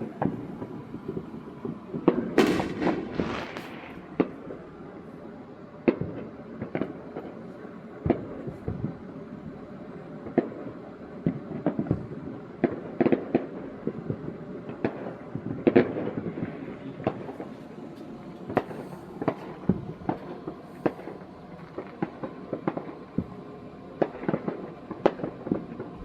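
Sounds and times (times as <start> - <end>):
fireworks bangs and pops: 0.2 - 4.7, 8.0 - 9.0, 18.4 - 23.4, 24.0 - 26.0.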